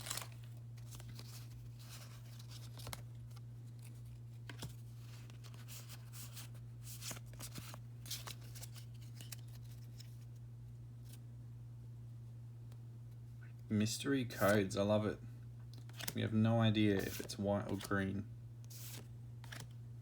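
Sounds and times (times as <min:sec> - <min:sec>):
trading cards rustling and ticking: 0:00.0 - 0:10.4, 0:14.3 - 0:14.7, 0:15.6 - 0:18.1, 0:18.7 - 0:19.8
steady low hum: 0:00.0 - 0:20.0.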